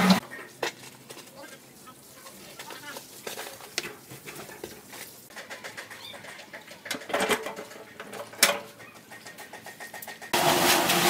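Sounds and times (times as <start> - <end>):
knocks and clatter: 3.8 - 10.4
bird calling: 8.7 - 9.7.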